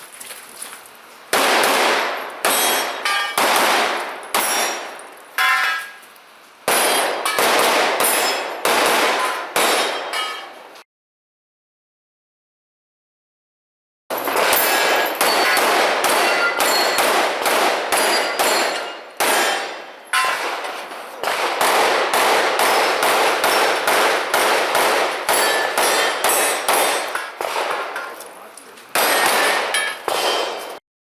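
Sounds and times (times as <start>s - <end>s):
pistol shots: 1.3s - 5.0s, 6.7s - 10.2s, 14.1s - 28.2s, 28.9s - 30.8s
steel plate ringing ping: 2.5s - 3.4s, 4.3s - 6.0s, 9.9s - 10.6s, 14.6s - 15.6s, 16.2s - 17.0s, 18.0s - 20.4s, 25.3s - 27.4s.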